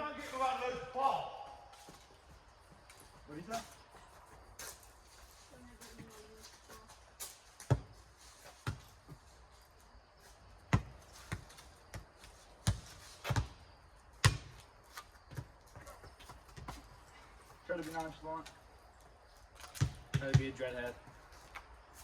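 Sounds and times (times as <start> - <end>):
rubber ball bouncing on pavement: 7.5 - 9.2, 10.6 - 17.0, 19.7 - 21.2.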